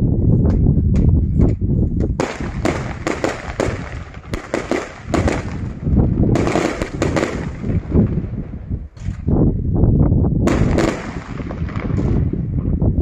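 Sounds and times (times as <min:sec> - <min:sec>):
fireworks cracks and bangs: 0:02.2 - 0:09.2, 0:10.4 - 0:12.6.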